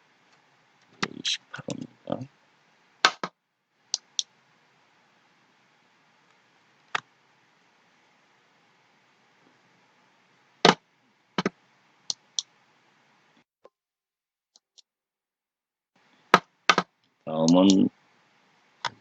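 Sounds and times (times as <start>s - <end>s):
computer mouse clicks: 3.9s - 4.3s, 12.1s - 12.5s, 17.4s - 17.8s.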